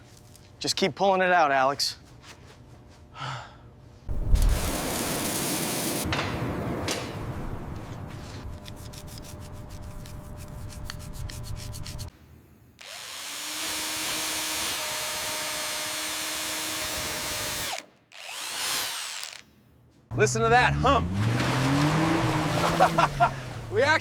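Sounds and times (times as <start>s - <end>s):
power tool rapid clicking: 12.8s - 14.9s, 16.8s - 19.4s.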